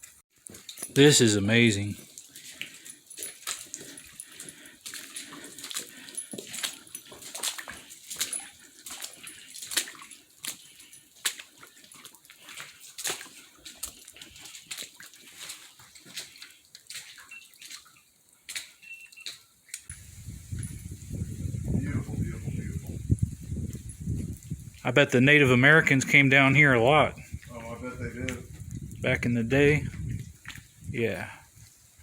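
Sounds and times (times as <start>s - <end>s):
dog breathing hard: 2.5s - 7.1s.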